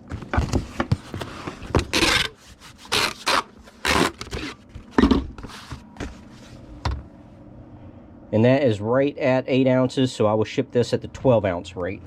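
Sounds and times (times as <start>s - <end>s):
scraping rubs of cardboard mailer: 1.2s - 4.6s.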